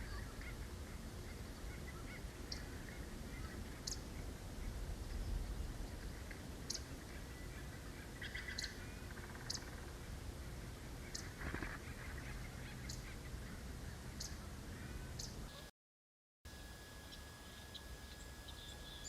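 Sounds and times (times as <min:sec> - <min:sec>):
bird chatter: 0:00.0 - 0:04.3, 0:06.0 - 0:10.0, 0:11.0 - 0:15.5
small birds calling: 0:00.0 - 0:15.6, 0:17.0 - 0:19.0.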